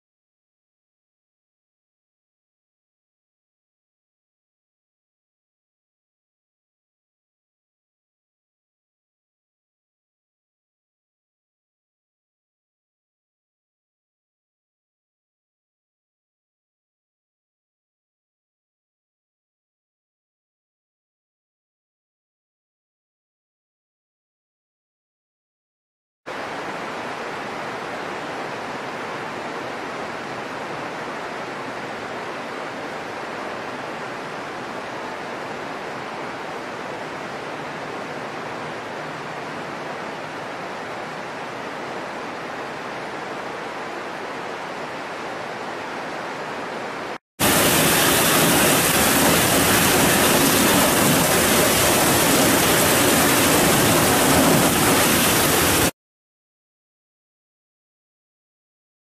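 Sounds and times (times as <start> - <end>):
heavy downpour: 26.3 - 55.9
steady rain hiss: 26.3 - 55.9.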